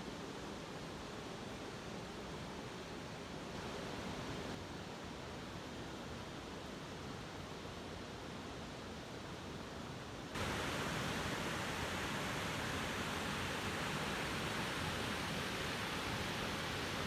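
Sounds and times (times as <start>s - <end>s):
flowing water rushing: 10.4s - 17.0s.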